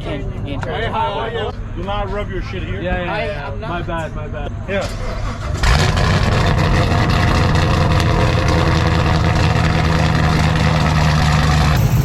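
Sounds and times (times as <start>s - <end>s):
car engine idling: 5.3s - 12.0s.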